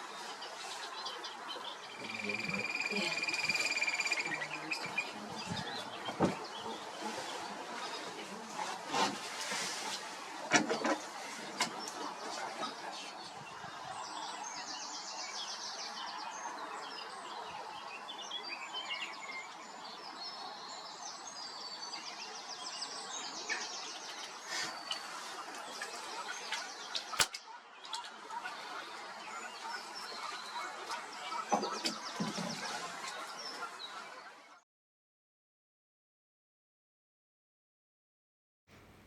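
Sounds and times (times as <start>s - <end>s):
songbirds singing trills: 0.0s - 8.7s, 10.6s - 34.5s
sharp click: 27.2s - 27.4s
outdoor background hiss: 38.7s - 39.0s.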